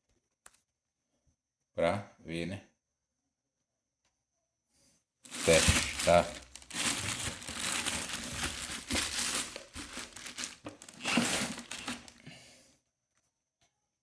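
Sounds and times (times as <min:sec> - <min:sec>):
rustling and crinkling handling noise: 0:05.3 - 0:12.3.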